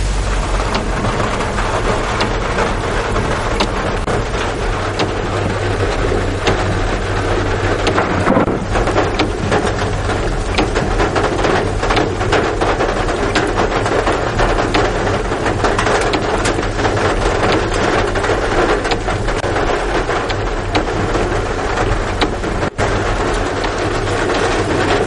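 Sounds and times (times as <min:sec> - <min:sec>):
low rumble: 0:00.0 - 0:15.7
heavy rain falling: 0:00.0 - 0:25.0.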